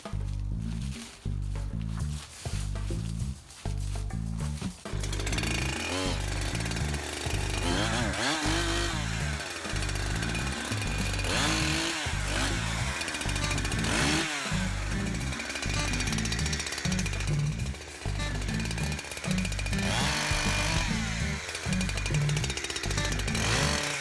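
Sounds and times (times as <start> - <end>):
background music with steady beat: 0.0 - 24.0
chainsaw revving and cutting: 4.9 - 24.0.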